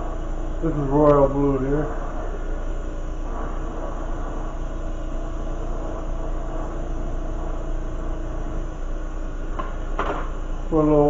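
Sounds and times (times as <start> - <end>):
torch flame rushing: 0.0 - 11.0.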